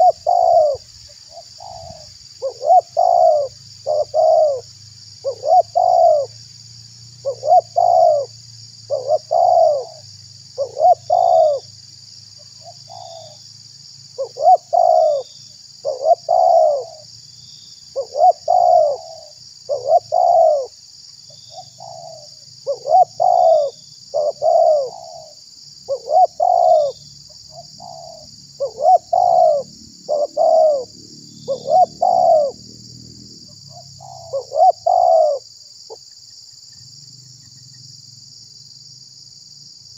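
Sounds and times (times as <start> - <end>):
dove cooing: 0.0 - 6.4, 7.2 - 8.3, 8.9 - 10.0, 10.6 - 11.7, 12.6 - 13.4, 14.2 - 17.1, 17.9 - 20.8, 21.5 - 32.6, 33.5 - 35.4
steady high-pitched hiss: 0.0 - 39.9.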